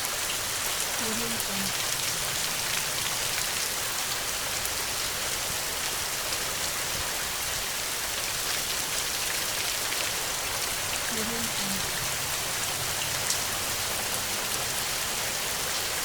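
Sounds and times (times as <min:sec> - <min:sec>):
heavy rain: 0:00.0 - 0:16.0.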